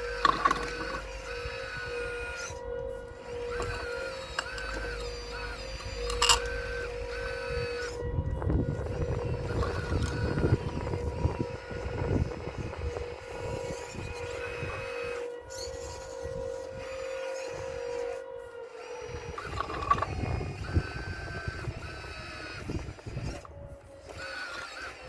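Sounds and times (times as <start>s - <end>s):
electric motors whining: 0.0s - 25.0s
stones grinding and clattering: 0.1s - 1.2s, 3.4s - 6.6s.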